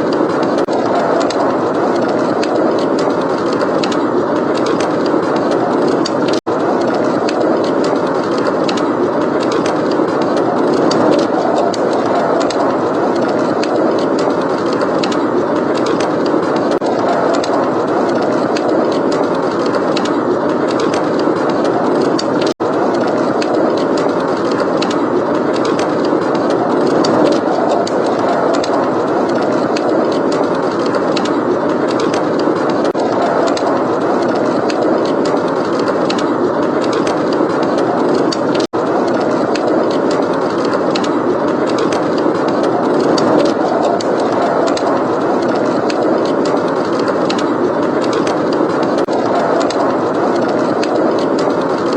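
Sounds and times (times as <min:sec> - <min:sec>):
blizzard wind: 0:00.0 - 0:51.9
wood fire crackling: 0:00.0 - 0:51.9.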